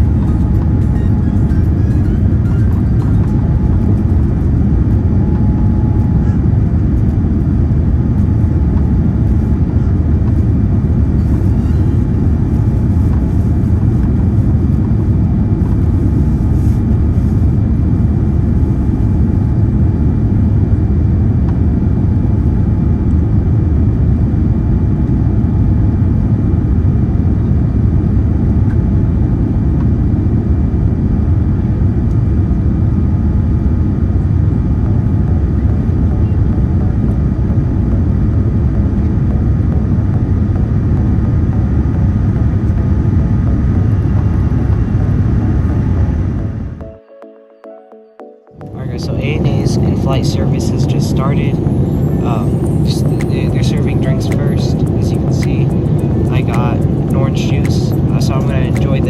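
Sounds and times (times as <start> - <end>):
airliner cabin engine rumble: 0.0 - 46.9, 48.7 - 59.0.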